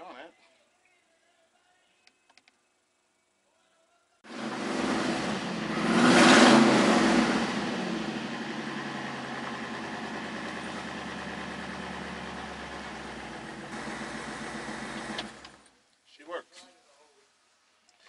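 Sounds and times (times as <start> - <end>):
car engine revving and idling: 4.3 - 15.6.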